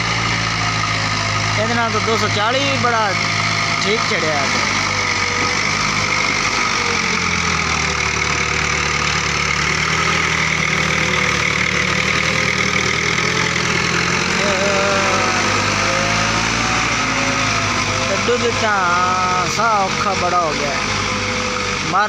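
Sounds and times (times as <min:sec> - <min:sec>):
diesel tractor engines labouring: 0:00.0 - 0:22.0.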